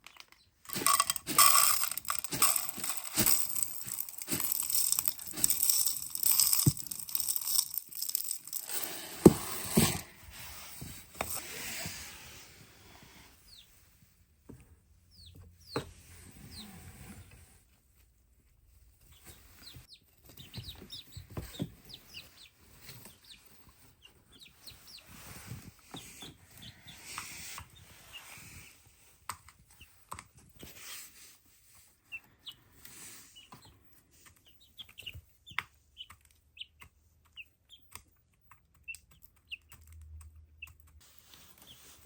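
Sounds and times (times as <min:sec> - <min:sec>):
chicks peeping and clucking: 0:19.0 - 0:42.0.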